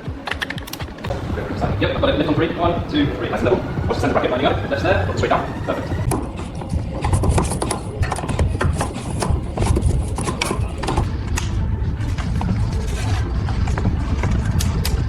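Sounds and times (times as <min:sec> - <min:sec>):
car part scraping and knocking: 0:06.0 - 0:11.1.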